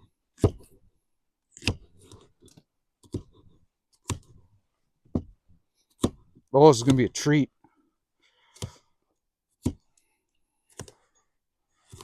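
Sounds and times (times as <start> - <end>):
knife chopping pepper: 1.5 - 2.3, 3.0 - 4.4, 5.9 - 7.1, 8.5 - 8.8, 9.6 - 9.9, 11.8 - 12.0.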